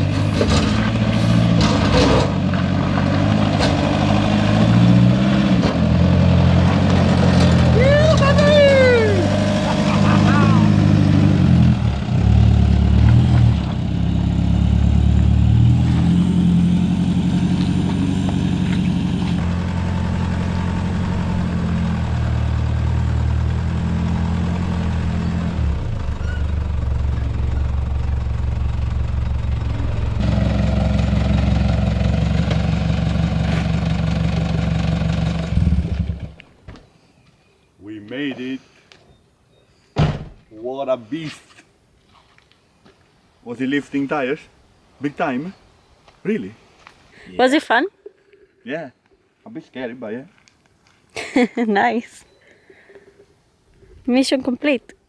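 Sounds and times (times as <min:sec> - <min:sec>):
car engine running under load: 0:00.0 - 0:36.5.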